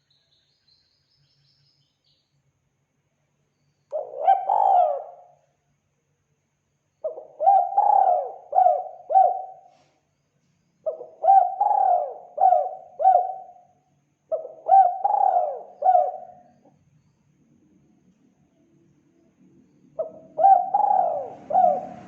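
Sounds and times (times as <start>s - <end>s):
dove cooing: 3.9s - 5.4s, 7.0s - 9.7s, 10.9s - 13.6s, 14.3s - 16.7s, 20.0s - 22.0s.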